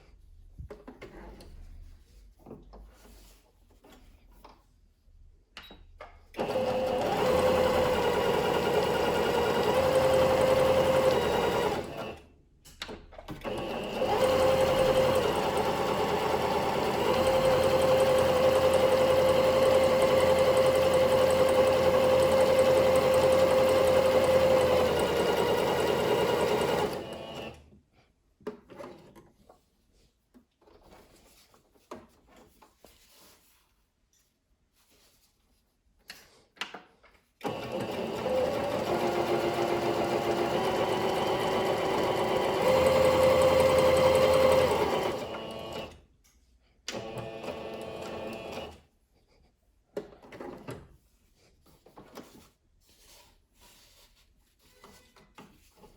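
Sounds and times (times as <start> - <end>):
sewing machine running: 6.4 - 12.3, 13.4 - 27.6, 37.4 - 46.0, 47.0 - 48.8.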